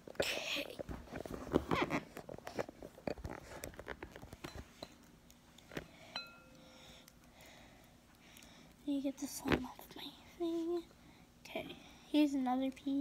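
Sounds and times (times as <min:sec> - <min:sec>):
faint steady tone: 0:05.8 - 0:09.0.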